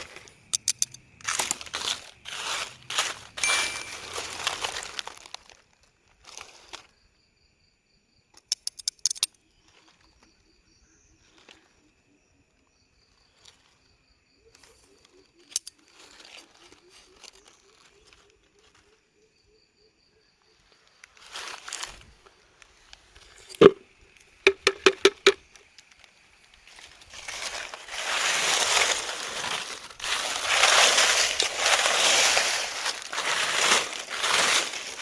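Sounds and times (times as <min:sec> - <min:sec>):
rustling and crinkling: 0:00.0 - 0:06.9, 0:14.6 - 0:19.0, 0:20.8 - 0:35.0
faint insect chirps: 0:00.0 - 0:35.0
sharp clicks: 0:00.5 - 0:01.0, 0:24.5 - 0:25.4.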